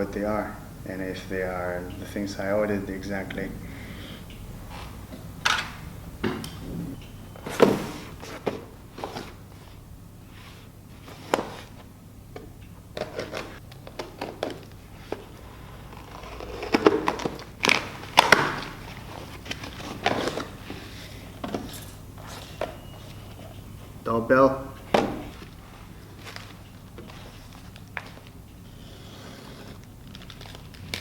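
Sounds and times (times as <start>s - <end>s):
packaging rustling: 13.0s - 23.6s, 25.2s - 31.0s.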